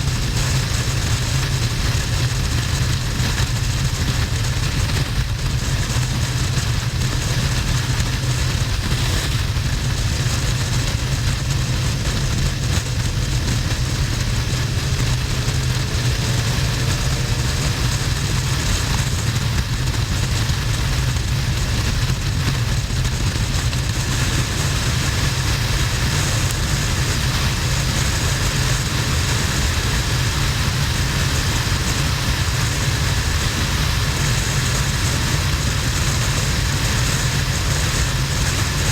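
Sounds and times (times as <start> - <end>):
motorcycle engine drone: 0.0 - 38.9.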